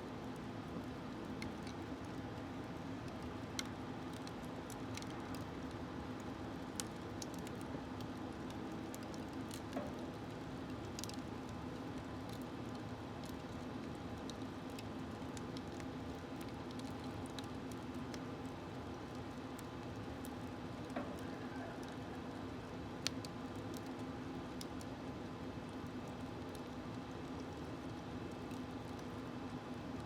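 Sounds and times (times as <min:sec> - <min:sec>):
wood fire crackling and popping: 0:00.1 - 0:30.0.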